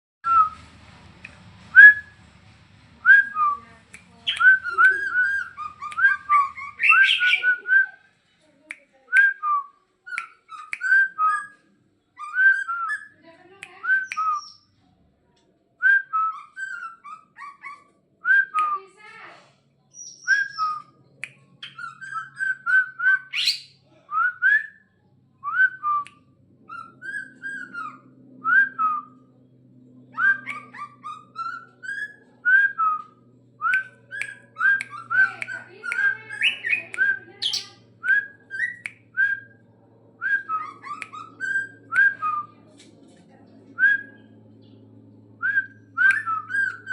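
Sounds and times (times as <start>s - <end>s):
bird singing whistled notes: 4.3s - 7.9s, 13.9s - 14.7s, 19.9s - 20.9s, 21.6s - 24.8s, 30.1s - 39.6s
sharp high bird chips: 5.8s - 7.5s, 23.3s - 23.8s, 35.9s - 37.8s
steady low hum: 19.5s - 46.9s.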